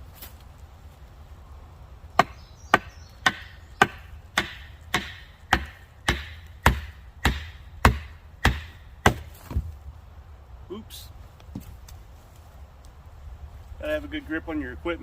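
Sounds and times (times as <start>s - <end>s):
knocks on wooden stake: 2.2s - 9.7s.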